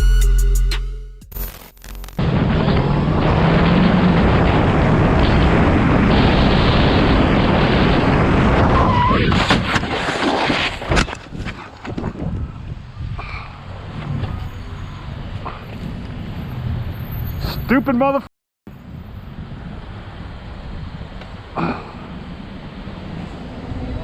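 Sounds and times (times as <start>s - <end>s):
wind rush on microphone: 2.2s - 14.6s, 18.7s - 24.0s
short squeal: 14.2s - 15.6s, 17.0s - 17.7s.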